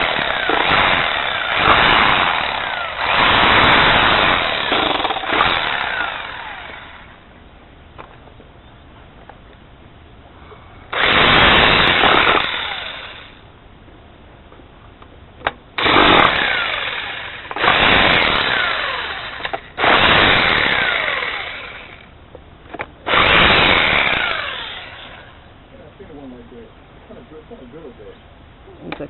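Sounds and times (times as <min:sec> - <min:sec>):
rotary hammer drilling into concrete: 0:00.0 - 0:07.1, 0:10.9 - 0:13.4, 0:15.8 - 0:22.1, 0:23.1 - 0:25.4.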